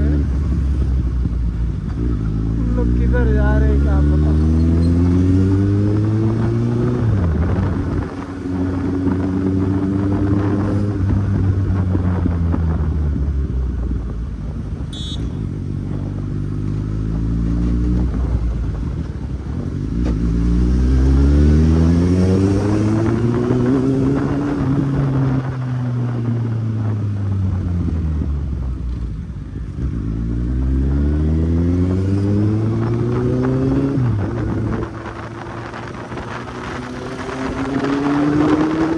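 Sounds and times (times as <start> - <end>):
motorcycle engine running: 10.9 - 20.1.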